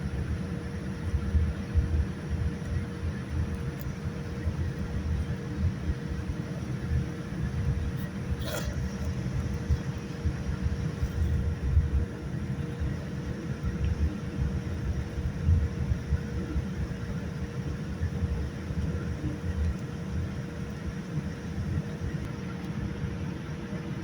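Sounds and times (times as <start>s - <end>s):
airliner cabin rumble: 0.0s - 24.0s
steady hum: 0.0s - 24.0s.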